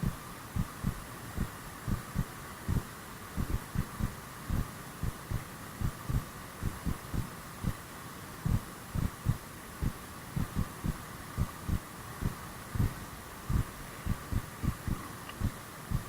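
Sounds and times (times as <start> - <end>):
dull low thumps: 8.5 - 16.0.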